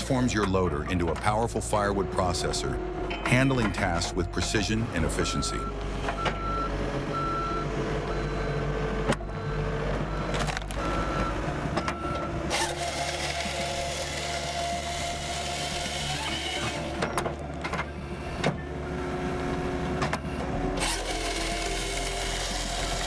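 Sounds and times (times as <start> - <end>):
loader engine running: 0.0 - 23.0
backup alarm beeping: 3.1 - 12.4.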